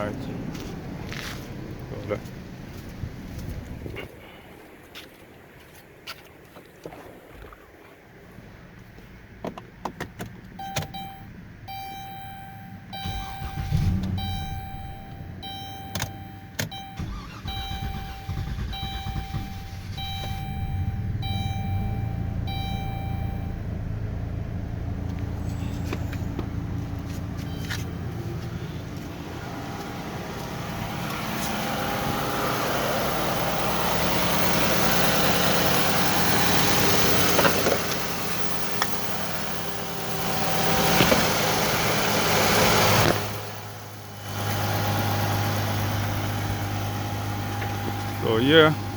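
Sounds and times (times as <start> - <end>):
car engine running: 9.8 - 48.9
dashboard warning chime: 10.6 - 28.8.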